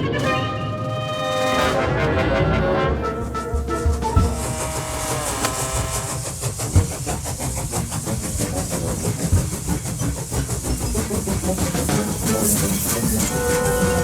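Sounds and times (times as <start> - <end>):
music: 0.0 - 14.0
toy train clattering on track: 3.2 - 14.0.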